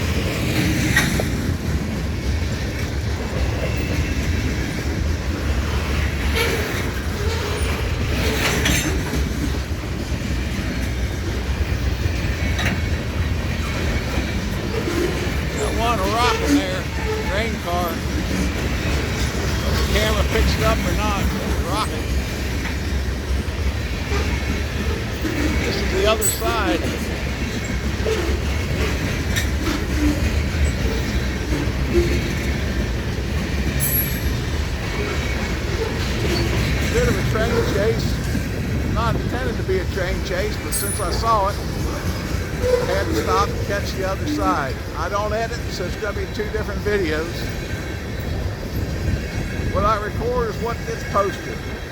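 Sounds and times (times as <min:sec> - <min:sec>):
freight train wheels rumbling on rails: 0:00.0 - 0:51.9.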